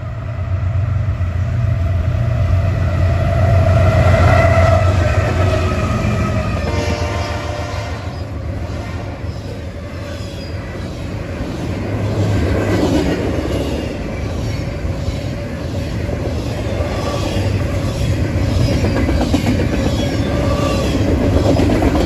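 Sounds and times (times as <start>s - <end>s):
freight train rumbling: 0.0s - 22.0s.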